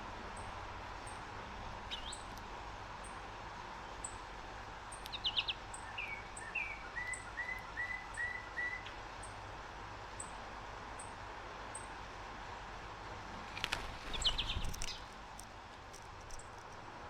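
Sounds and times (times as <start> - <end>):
songbird calling: 1.9 - 2.3, 4.9 - 9.4, 14.0 - 15.1
faint regular ticking: 14.6 - 16.9.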